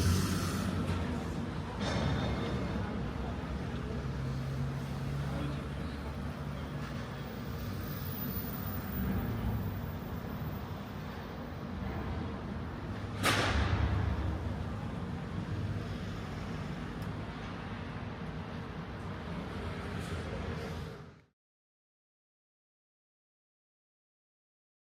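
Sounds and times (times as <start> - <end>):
sudden loud hiss: 0.0 - 1.3
low building ambience rumble: 0.0 - 21.0.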